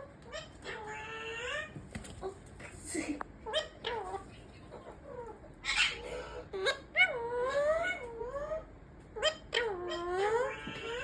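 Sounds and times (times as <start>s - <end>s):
baby parrot squawking: 4.8s - 11.0s.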